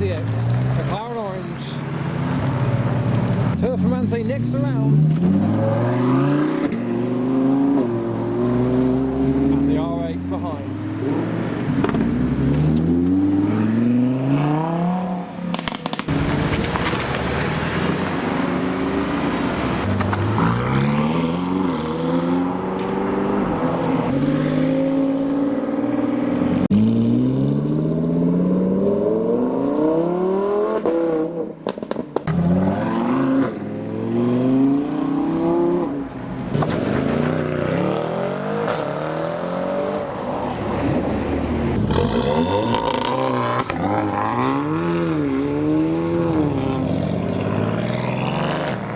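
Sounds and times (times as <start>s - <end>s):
sports cars accelerating: 0.0s - 48.9s.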